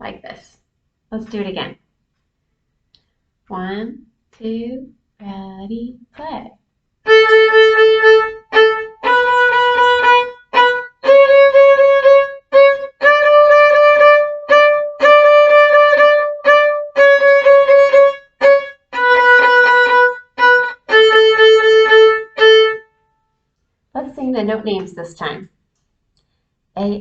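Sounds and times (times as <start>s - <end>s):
violin playing a simple tune: 7.0s - 23.0s.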